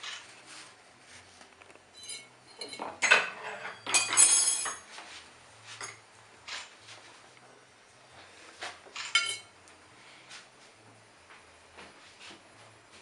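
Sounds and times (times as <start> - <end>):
utensils clinking on a plate: 2.0 - 4.9, 5.8 - 6.7, 8.9 - 9.5.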